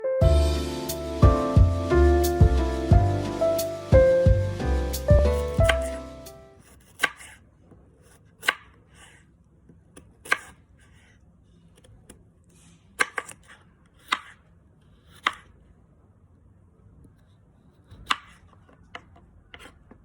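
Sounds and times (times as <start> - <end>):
knife chopping on cutting board: 5.1 - 7.4, 8.1 - 8.8, 10.0 - 10.6, 13.0 - 14.4, 15.1 - 15.4, 17.8 - 18.5
knife slicing and scraping: 5.2 - 9.3, 10.2 - 11.9.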